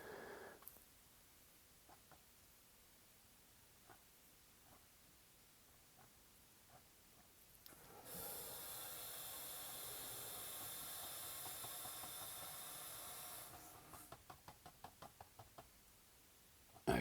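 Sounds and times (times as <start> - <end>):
paintbrush tapping canvas: 13.9 - 15.9.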